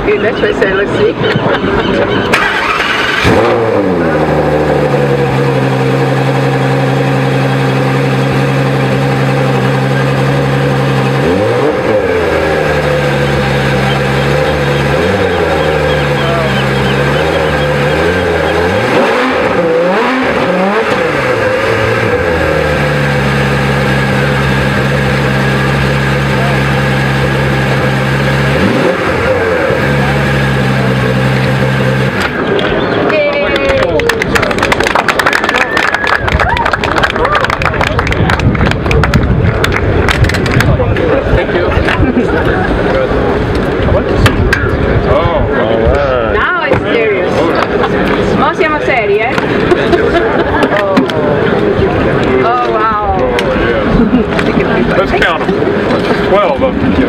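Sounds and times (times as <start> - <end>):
car engine idling: 0.0 - 57.0
engine revving: 1.7 - 33.1.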